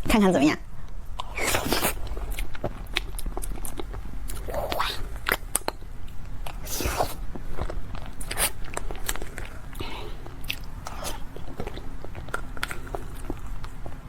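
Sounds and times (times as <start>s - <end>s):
crunchy snack chewing: 1.2s - 14.0s.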